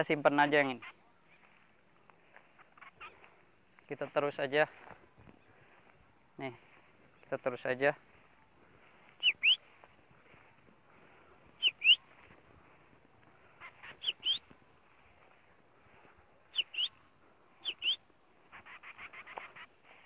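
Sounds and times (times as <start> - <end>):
bird whistled chirps: 9.2 - 9.7, 11.6 - 12.1, 13.9 - 14.5, 16.5 - 17.0, 17.6 - 18.0.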